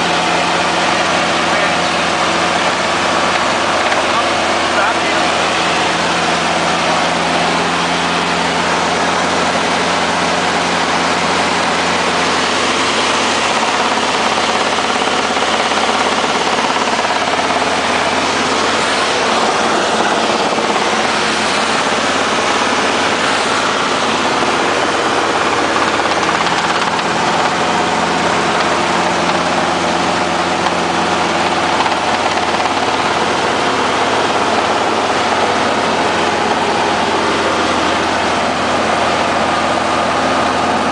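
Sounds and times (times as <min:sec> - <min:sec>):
helicopter engine and rotor: 0:00.0 - 0:40.9.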